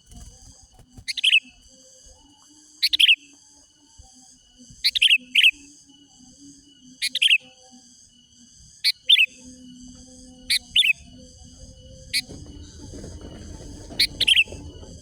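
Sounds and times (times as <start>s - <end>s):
bird chirping in bursts: 0.0s - 1.7s, 2.8s - 3.3s, 4.8s - 5.7s, 8.8s - 15.0s.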